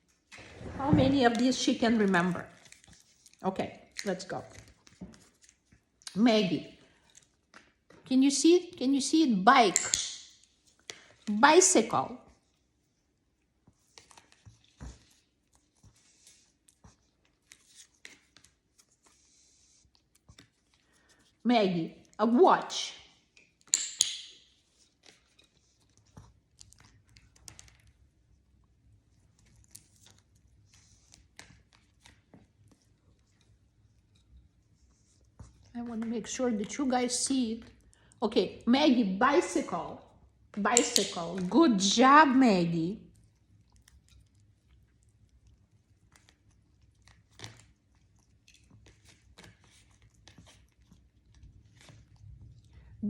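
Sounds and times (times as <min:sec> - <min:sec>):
parrot chewing with its beak: 0:43.1 - 0:53.0.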